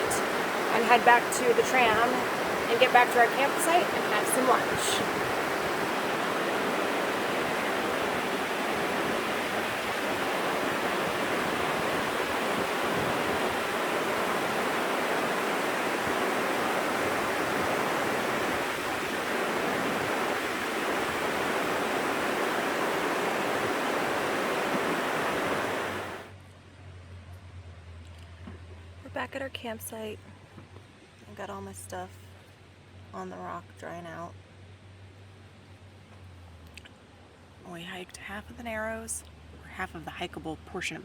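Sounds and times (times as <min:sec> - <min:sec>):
water rushing over rocks: 0:00.0 - 0:26.3.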